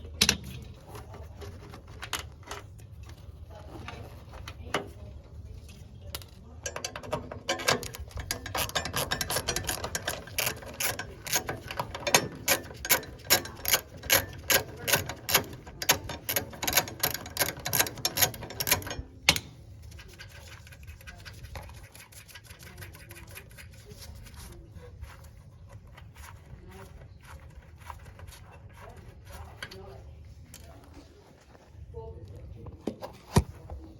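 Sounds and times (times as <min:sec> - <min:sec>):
faint handling noise: 0:00.0 - 0:23.0, 0:23.6 - 0:33.9
rapid mechanical clicking: 0:06.6 - 0:24.5.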